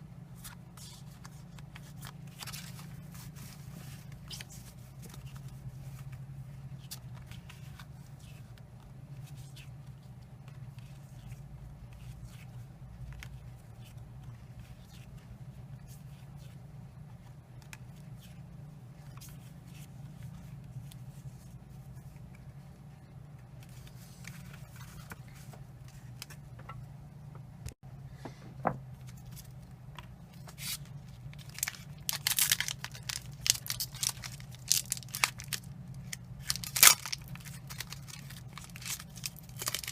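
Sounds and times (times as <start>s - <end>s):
low steady hum: 0.0s - 39.9s
soft clicks of cards handled: 0.4s - 16.6s, 17.2s - 18.4s
foil pack crinkling and tearing: 30.6s - 39.9s.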